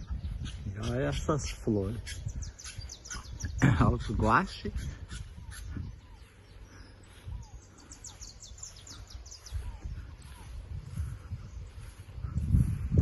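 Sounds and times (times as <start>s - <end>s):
soft bird calls: 0.0s - 13.0s
songbird singing: 0.0s - 13.0s
wind on microphone: 0.0s - 13.0s
microphone handling rumble: 7.3s - 13.0s.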